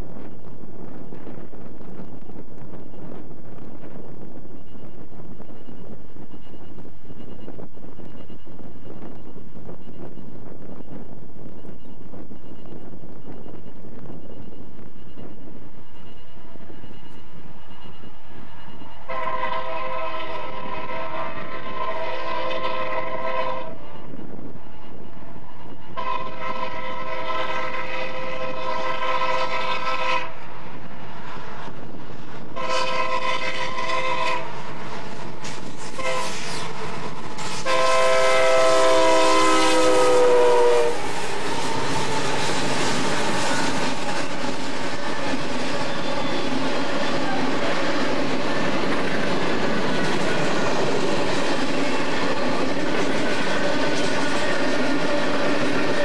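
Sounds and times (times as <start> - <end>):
freight cars rolling on rails: 0.0 - 56.0
locomotive horn blasts: 19.0 - 24.0, 25.9 - 30.5, 32.6 - 34.6, 35.9 - 36.6, 37.6 - 42.0.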